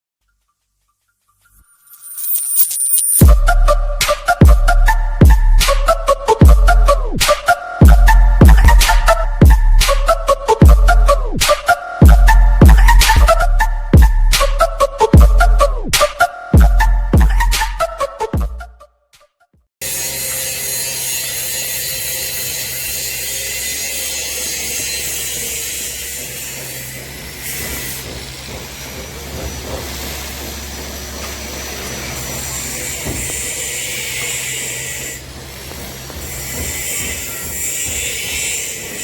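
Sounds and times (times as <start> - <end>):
excavator diesel engine humming: 28.0 - 37.6.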